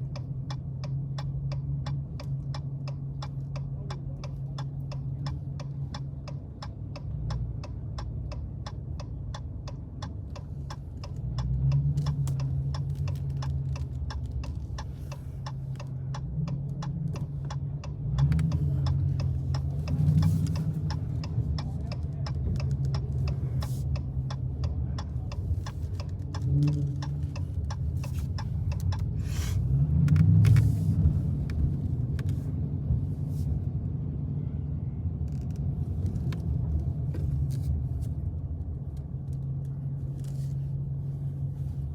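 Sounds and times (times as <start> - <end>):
turn signal ticking: 0.0 - 41.9
car engine revving: 10.2 - 33.4.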